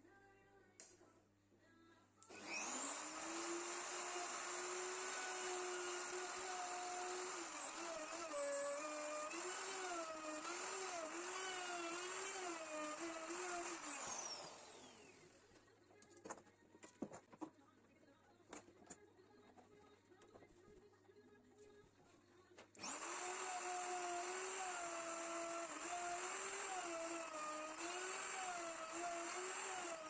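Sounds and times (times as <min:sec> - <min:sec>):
drill press motor running: 0:02.3 - 0:15.2, 0:22.8 - 0:30.0.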